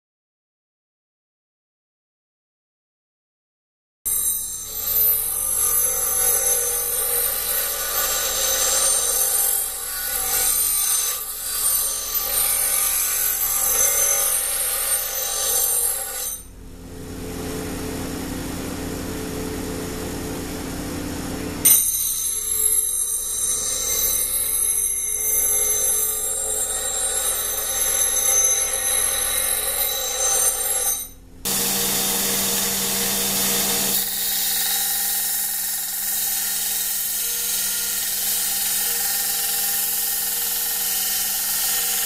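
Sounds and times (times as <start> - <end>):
power tool grinding with whine: 4.4 - 16.5, 22.4 - 42.0.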